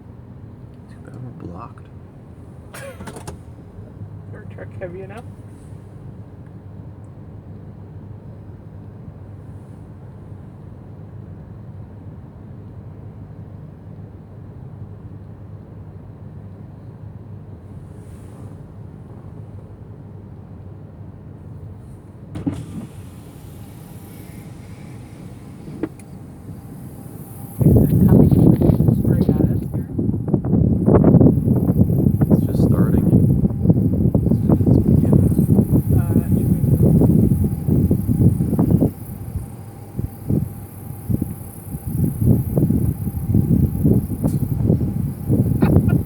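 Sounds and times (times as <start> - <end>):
low rumble inside truck cab: 0.0 - 46.0
wind buffeting microphone: 22.4 - 46.0.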